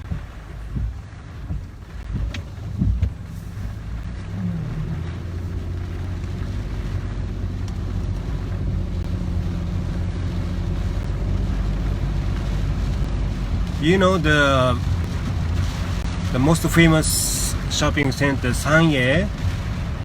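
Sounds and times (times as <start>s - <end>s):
short knocks: 0.0s - 3.9s
car engine and road noise: 0.0s - 20.0s.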